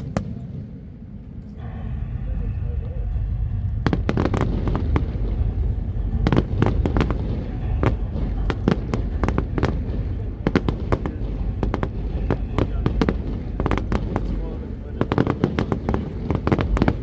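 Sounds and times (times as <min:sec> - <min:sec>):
low rumble: 0:00.0 - 0:17.0
fireworks bursts and bangs: 0:03.8 - 0:17.0.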